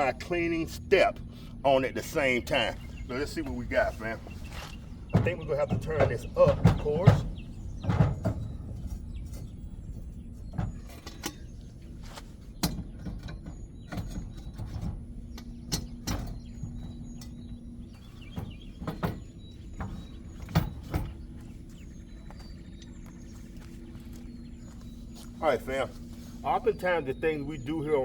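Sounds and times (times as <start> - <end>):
metal clanks and knocks: 2.0 - 23.5.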